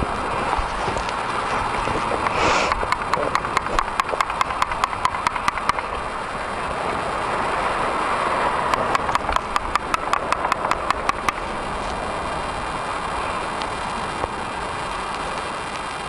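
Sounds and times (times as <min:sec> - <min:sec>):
rapid even ticking: 0:00.0 - 0:06.5, 0:08.6 - 0:11.8
vehicle engine running: 0:00.0 - 0:15.4.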